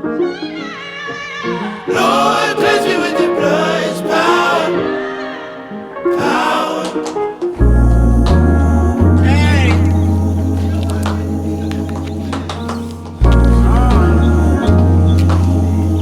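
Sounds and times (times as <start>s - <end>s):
choir singing wordless melody: 0.0s - 16.0s
deep bass: 7.6s - 12.5s, 13.2s - 16.0s.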